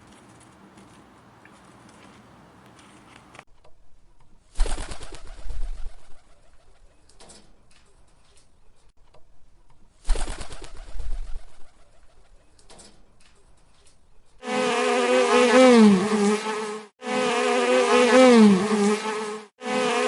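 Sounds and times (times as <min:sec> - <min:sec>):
short rustling: 0:00.0 - 0:03.4
insect buzzing: 0:14.4 - 0:20.0.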